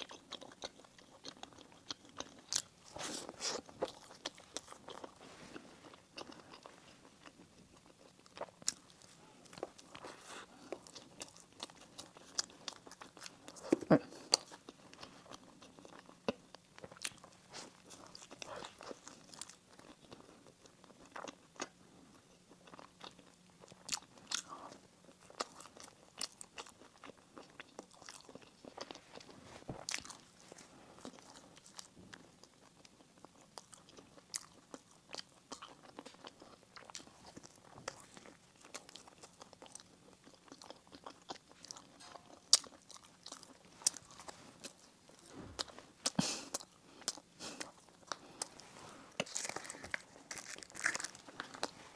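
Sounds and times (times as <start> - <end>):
crunching and chewing bread: 0.0 - 51.9
sharp crackles of pastry: 48.1 - 51.9.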